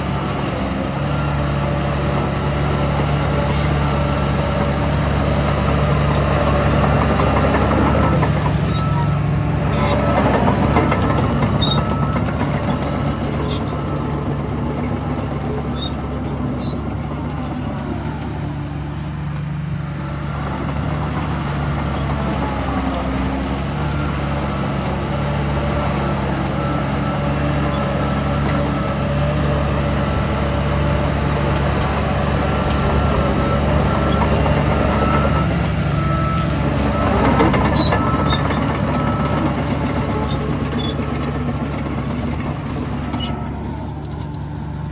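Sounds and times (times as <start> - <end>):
heavy diesel engine running: 0.0 - 44.9
reversing alarm beeping: 6.2 - 16.1, 31.2 - 44.8.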